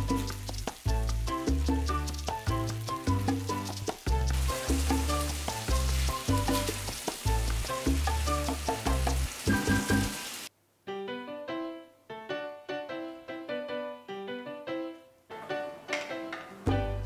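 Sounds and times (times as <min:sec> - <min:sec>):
meat and tomato sizzling: 0:00.0 - 0:10.5
light background music: 0:00.0 - 0:17.0.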